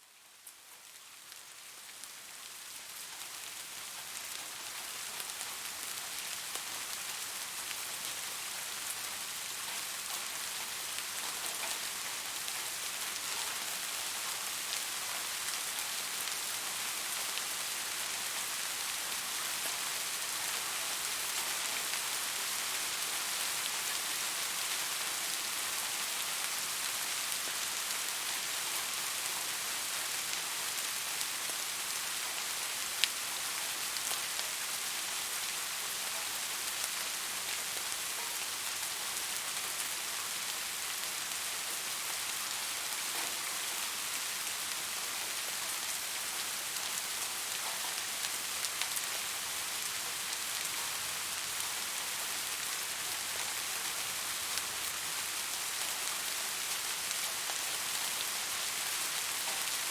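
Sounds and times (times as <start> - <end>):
rain falling on a surface: 0.0 - 59.9.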